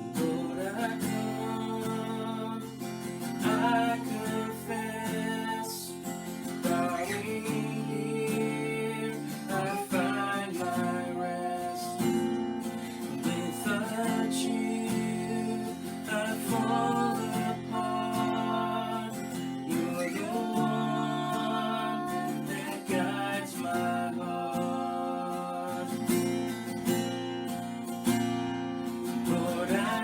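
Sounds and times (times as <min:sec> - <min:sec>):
acoustic guitar strumming: 0:00.0 - 0:30.0
person singing: 0:03.4 - 0:06.0, 0:06.6 - 0:12.2, 0:13.1 - 0:26.1, 0:29.3 - 0:30.0.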